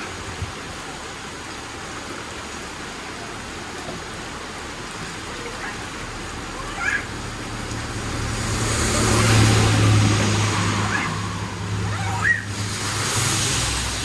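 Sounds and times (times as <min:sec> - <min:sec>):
strong wind: 0:00.0 - 0:02.4, 0:05.0 - 0:14.0
heavy rain: 0:00.0 - 0:14.0.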